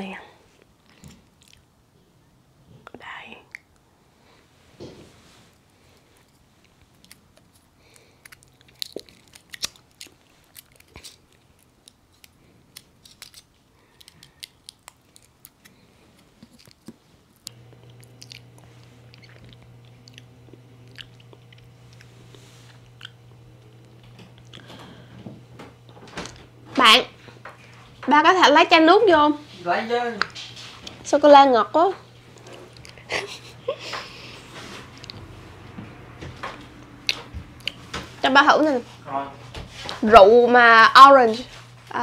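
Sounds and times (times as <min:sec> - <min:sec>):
chewing and crunching chocolate: 0:00.7 - 0:01.7, 0:06.0 - 0:25.1, 0:32.3 - 0:33.5, 0:35.0 - 0:35.3
mouth clicks and snaps: 0:00.8 - 0:01.7, 0:02.9 - 0:03.9, 0:06.6 - 0:22.1
low steady hum: 0:14.6 - 0:42.0.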